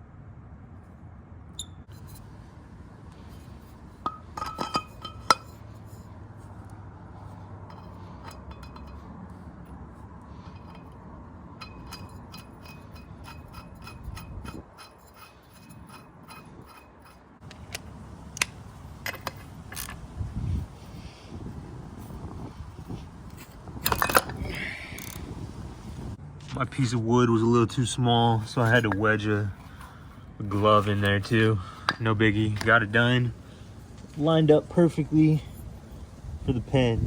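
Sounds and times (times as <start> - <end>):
metal clanks: 3.1 - 6.2, 7.6 - 20.0, 22.3 - 25.3, 28.4 - 33.2
light metal clicks and taps: 11.6 - 20.0.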